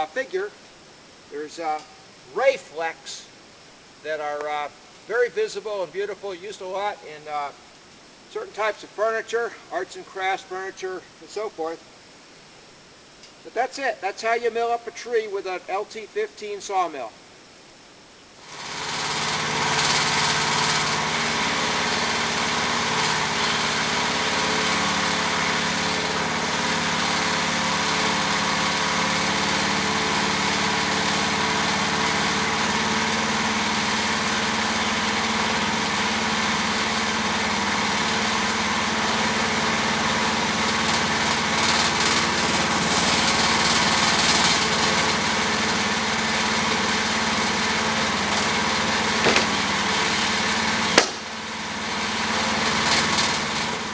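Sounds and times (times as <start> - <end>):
small gasoline engine running: 18.5 - 53.9.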